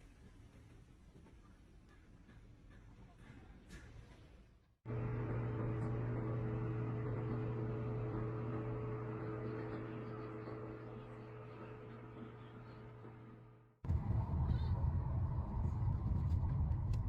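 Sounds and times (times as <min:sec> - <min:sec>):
low machine hum with steady tones: 0:04.9 - 0:17.0.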